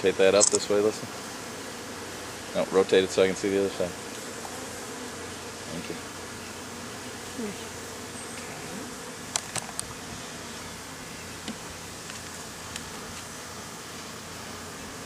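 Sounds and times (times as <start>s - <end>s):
honeybees humming: 0.0s - 15.0s
sharp clicks: 0.4s - 0.6s.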